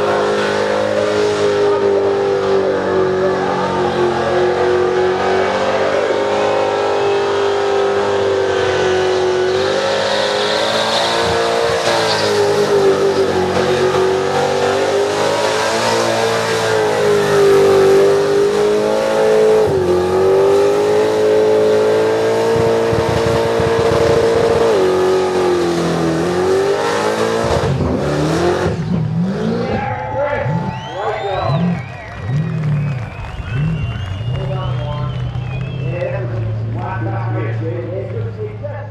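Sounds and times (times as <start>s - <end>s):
engine revving high: 0.0s - 38.2s
spinning tyres hissing: 4.2s - 25.3s.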